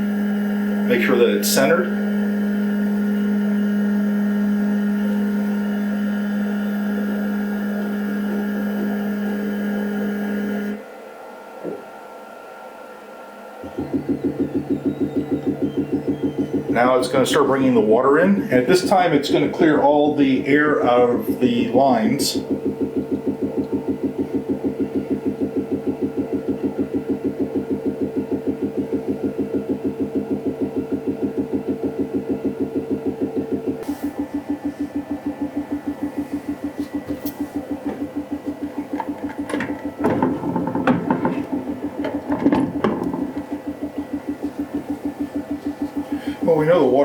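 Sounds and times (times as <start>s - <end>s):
liquid pump pulsing: 0.0s - 10.6s, 13.6s - 47.0s
motor humming: 0.0s - 11.0s, 13.5s - 47.0s.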